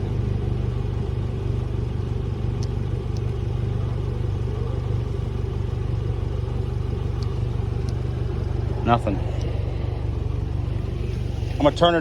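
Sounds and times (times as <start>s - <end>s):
engine idling: 0.0s - 12.0s
faint ticks: 7.1s - 8.6s.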